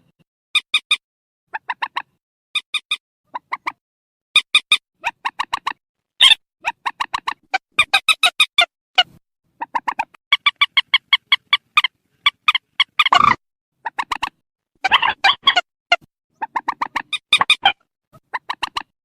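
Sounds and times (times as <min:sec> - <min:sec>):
bird clucking calls: 0:01.5 - 0:03.8, 0:04.4 - 0:19.0
bird harsh screech: 0:14.8 - 0:15.6.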